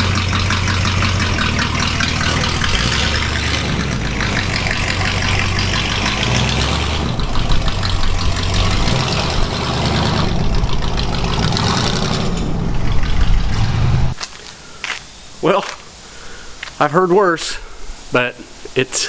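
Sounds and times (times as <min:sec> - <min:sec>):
truck engine idling: 0:00.0 - 0:14.2.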